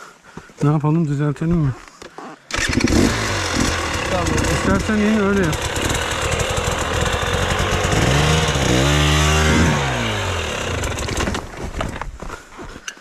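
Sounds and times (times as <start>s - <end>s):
dirt bike engine revving: 2.5s - 11.6s.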